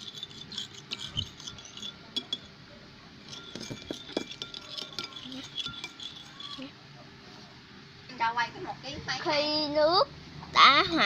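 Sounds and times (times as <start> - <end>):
utensil clinking against a bowl: 0.0 - 2.6, 3.2 - 6.7.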